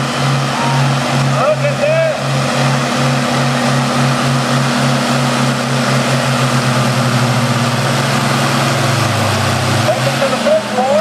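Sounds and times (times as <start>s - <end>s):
tractor engines under load: 0.0s - 11.0s.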